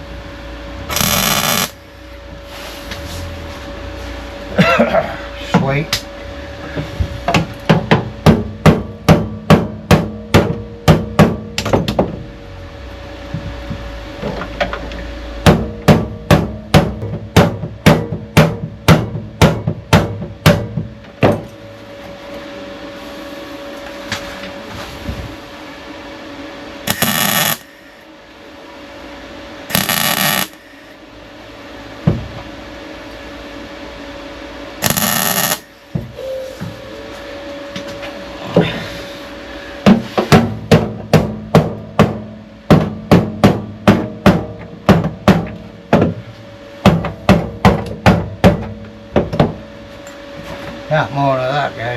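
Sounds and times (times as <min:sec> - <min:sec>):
hammer striking sheet steel: 0:00.9 - 0:01.7, 0:26.9 - 0:27.7, 0:29.7 - 0:30.6, 0:34.8 - 0:35.7.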